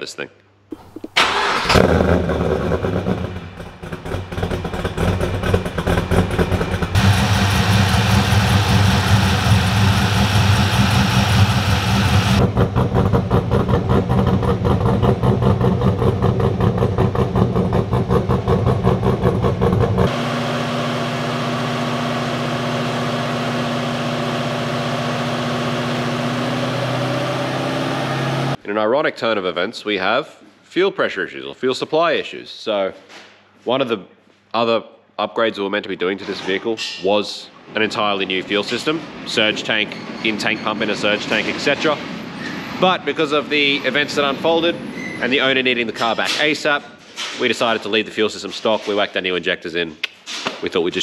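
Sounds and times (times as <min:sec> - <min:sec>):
car engine idling with choppy beat: 0:03.8 - 0:20.1.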